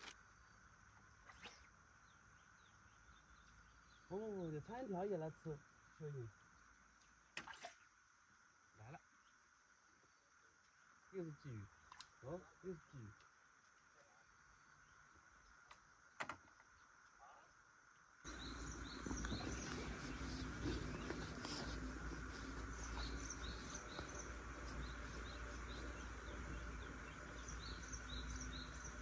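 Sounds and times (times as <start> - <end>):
birds chirping: 18.3 - 29.0.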